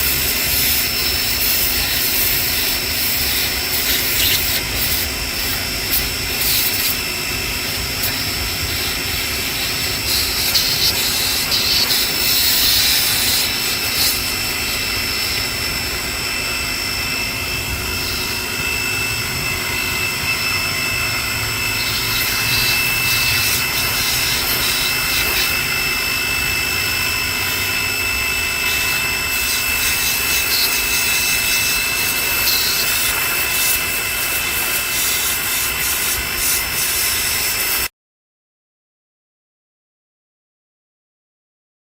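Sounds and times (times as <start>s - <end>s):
water spray hissing: 0.0s - 7.1s, 7.8s - 15.8s, 21.8s - 25.8s, 28.6s - 37.2s
pressure washer whine: 0.0s - 37.9s.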